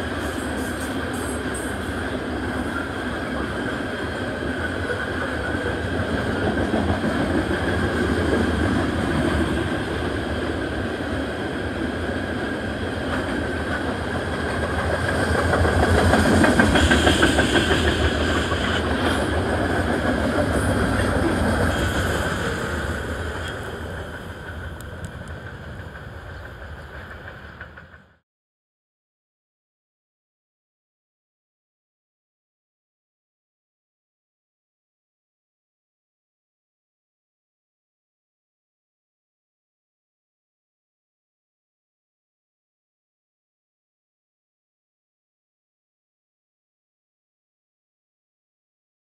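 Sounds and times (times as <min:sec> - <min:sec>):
freight train wheels rumbling: 0:00.0 - 0:28.2.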